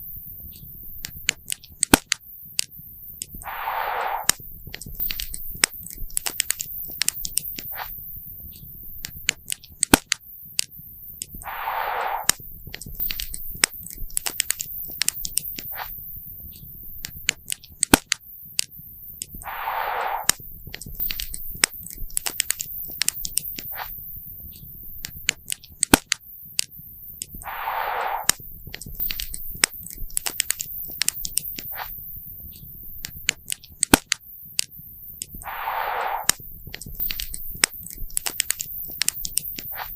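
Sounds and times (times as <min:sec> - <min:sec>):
hissing rush: 0:03.4 - 0:04.4, 0:11.4 - 0:12.4, 0:19.4 - 0:20.4, 0:27.4 - 0:28.4, 0:35.4 - 0:36.4.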